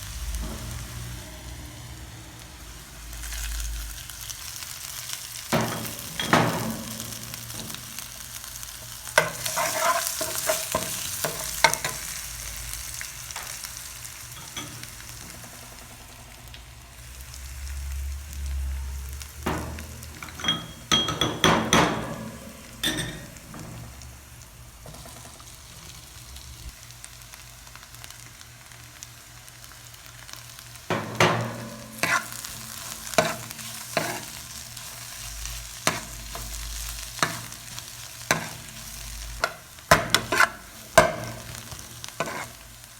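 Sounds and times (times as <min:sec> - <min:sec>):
food sizzling in hot oil: 0:00.0 - 0:42.9
utensil knocking and scraping pan: 0:09.2 - 0:12.0, 0:19.5 - 0:24.0, 0:30.9 - 0:34.4, 0:37.2 - 0:37.5, 0:38.3 - 0:38.8, 0:39.4 - 0:42.6.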